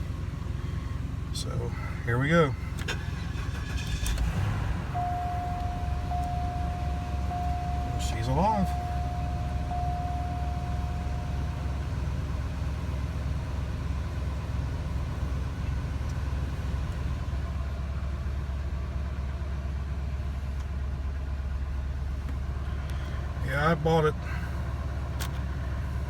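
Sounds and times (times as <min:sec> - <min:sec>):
car engine idling: 0:00.0 - 0:26.0
steady high tone: 0:04.8 - 0:12.0.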